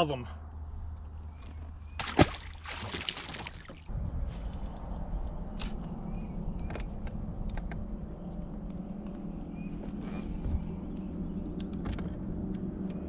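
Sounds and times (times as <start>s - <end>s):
water splashing: 2.0s - 3.9s
boat motor humming: 4.8s - 13.0s.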